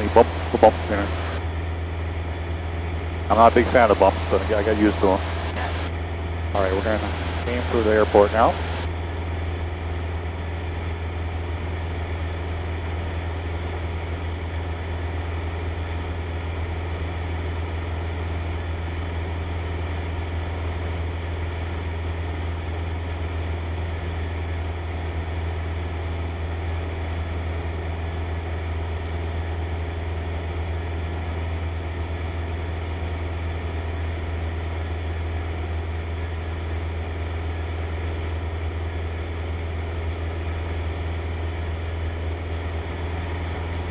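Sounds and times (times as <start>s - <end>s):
aircraft engine and propeller droning: 0.0s - 43.9s.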